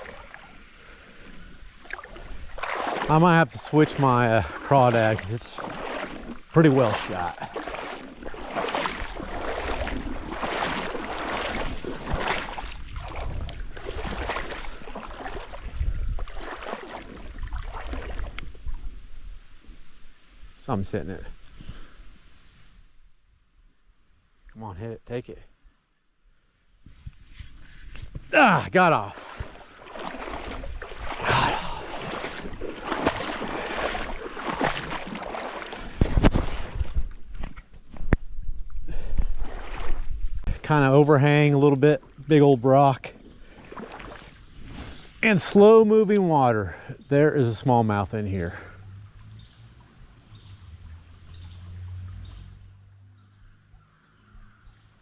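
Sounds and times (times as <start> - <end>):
water sloshing and splashing: 0.0 - 20.0, 27.3 - 52.9
wind rumble on microphone: 8.1 - 20.0, 29.4 - 40.7.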